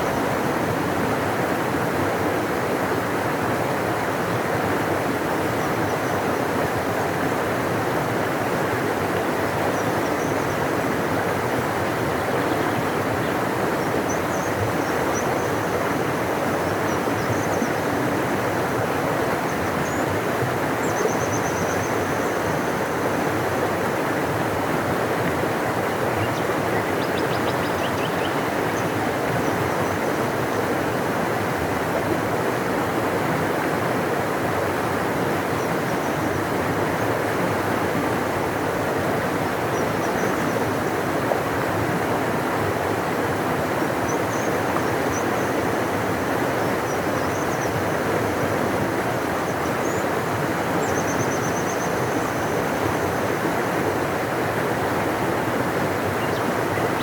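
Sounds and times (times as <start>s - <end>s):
river rushing: 0.1s - 57.0s.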